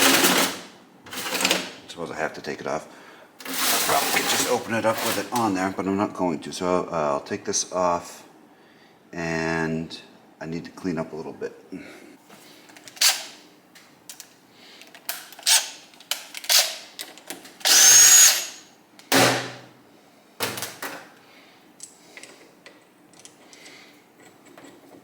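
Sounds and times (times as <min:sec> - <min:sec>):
power tool bursts: 0:17.7 - 0:19.4.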